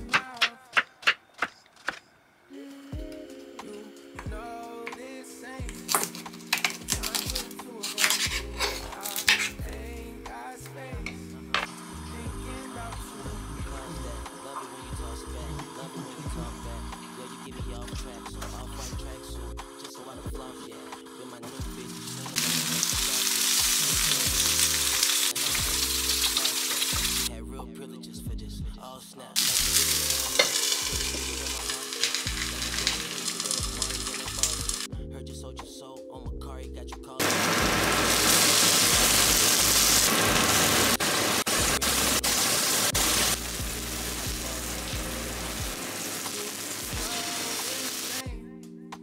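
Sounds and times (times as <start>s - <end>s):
background music with bass: 2.9s - 49.0s
vegetables sizzling in a frying pan: 22.4s - 23.8s, 24.4s - 27.3s, 29.4s - 30.9s, 32.0s - 34.1s, 37.2s - 48.2s.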